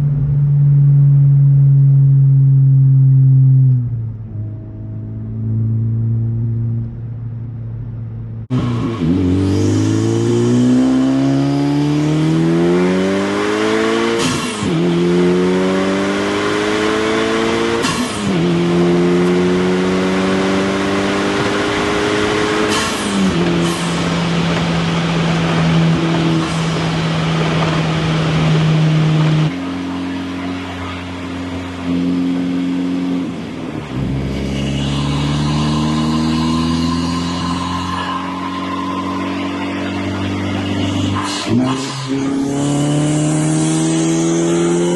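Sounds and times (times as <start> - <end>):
car engine accelerating: 0.0 - 44.9.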